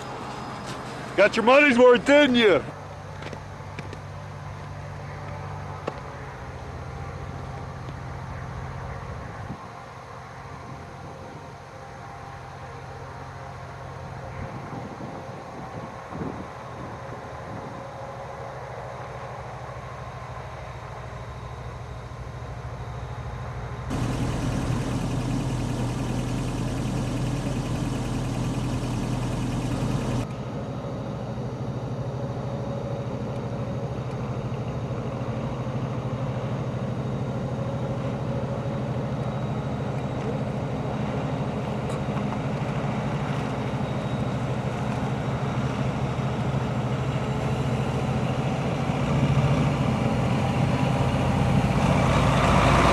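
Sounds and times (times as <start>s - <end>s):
heavy train engines humming: 0.0s - 52.9s.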